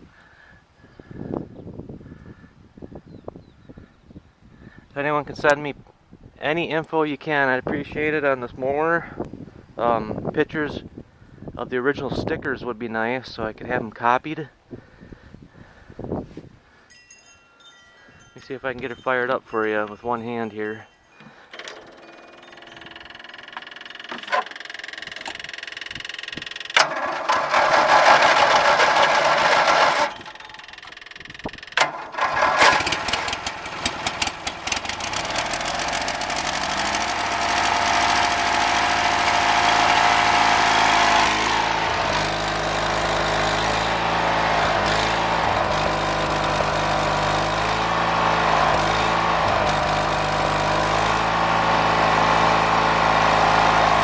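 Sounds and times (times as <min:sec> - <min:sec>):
tractor engine running: 0:19.8 - 0:54.0
engine cranking: 0:21.2 - 0:54.0
engine popping: 0:22.7 - 0:54.0.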